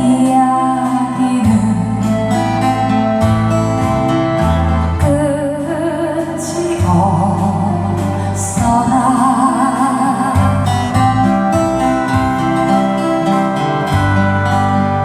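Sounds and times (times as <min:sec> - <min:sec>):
woman singing with vibrato: 0:00.0 - 0:03.0, 0:05.0 - 0:11.6
acoustic guitar: 0:00.0 - 0:15.0.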